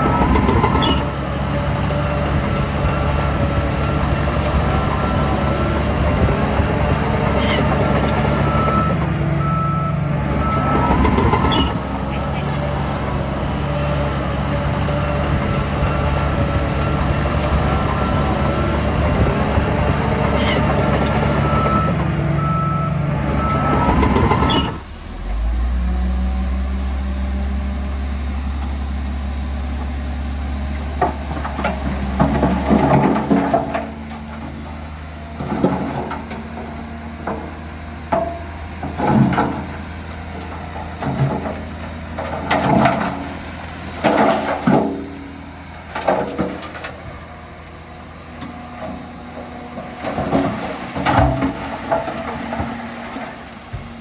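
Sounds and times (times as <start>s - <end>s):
diesel engine drone: 0.0s - 54.0s
low engine hum: 0.0s - 54.0s
reversing alarm beeps: 8.4s - 11.8s, 21.4s - 24.8s.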